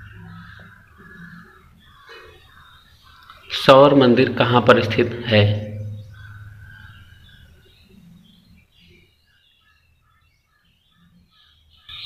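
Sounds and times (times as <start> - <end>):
low hum: 0.0 - 2.6, 4.0 - 8.7
faint bird chirps: 0.0 - 12.0
short evenly spaced bird notes: 0.0 - 12.0.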